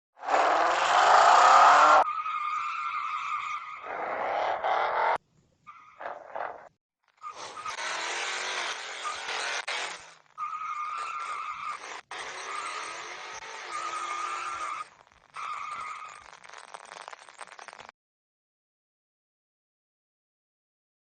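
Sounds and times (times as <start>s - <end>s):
car tyres screeching: 0.2s - 16.6s.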